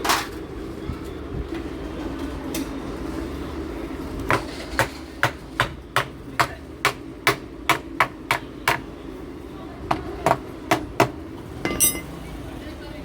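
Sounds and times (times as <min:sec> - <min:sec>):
hammer tapping on metal: 0:11.7 - 0:12.1.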